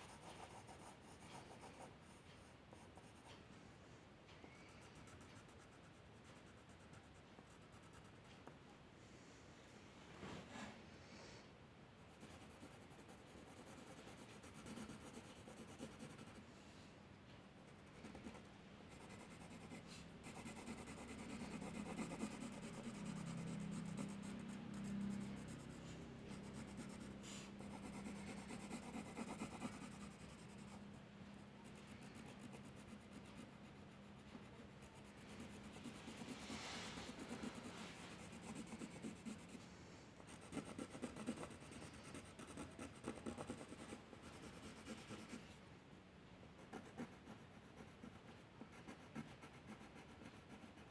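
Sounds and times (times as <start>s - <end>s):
low steady hum: 0.0s - 50.8s
pen scratching on paper: 12.2s - 16.4s, 17.8s - 30.8s, 31.6s - 39.6s, 40.3s - 45.4s, 46.7s - 50.9s.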